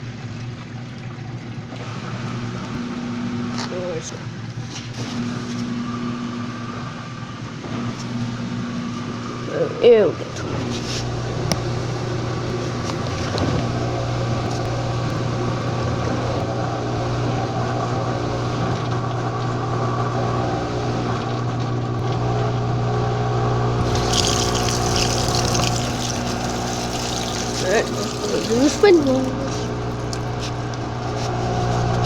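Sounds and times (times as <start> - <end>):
hissing rush of water: 23.8 - 30.8
water moving through machine: 23.8 - 30.8
washing machine pump hum: 23.8 - 31.6.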